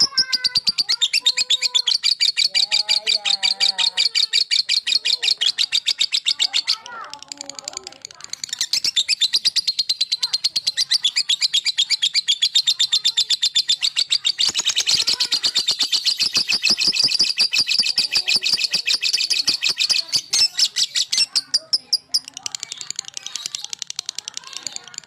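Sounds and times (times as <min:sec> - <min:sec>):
lovebird chattering high chirps: 0:00.0 - 0:25.0.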